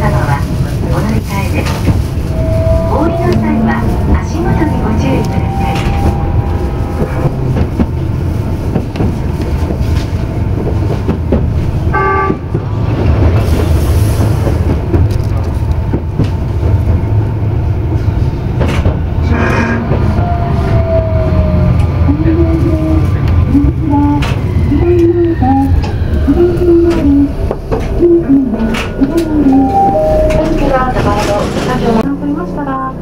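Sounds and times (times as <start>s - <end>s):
tram rumbling along track: 0.0s - 33.0s
tram wheel clicks: 21.8s - 32.1s.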